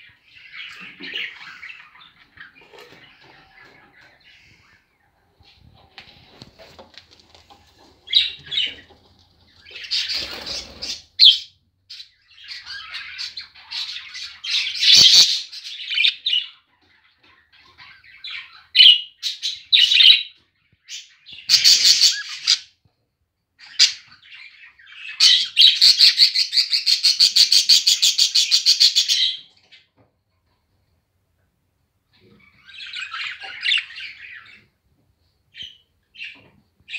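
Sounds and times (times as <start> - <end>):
budgerigars chirping and warbling: 0.0 - 5.1, 8.1 - 22.8, 23.6 - 29.8, 32.1 - 34.8.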